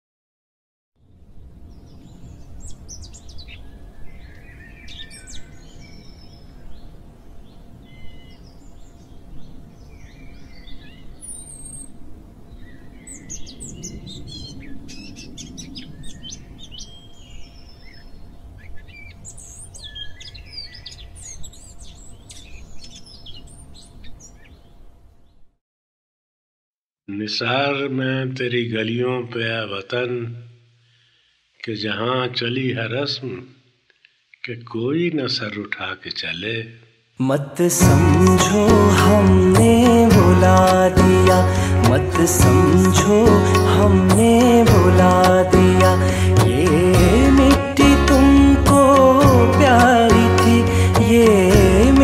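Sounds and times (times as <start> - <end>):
faint constant hum: 1.0 - 25.5
birds chirping and trilling: 1.1 - 25.5, 37.7 - 52.0.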